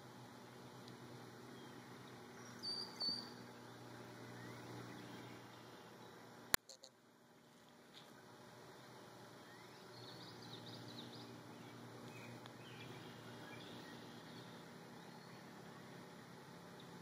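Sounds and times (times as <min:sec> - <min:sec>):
steady low hiss: 0:00.0 - 0:17.0
short high bird chirps: 0:02.4 - 0:03.4.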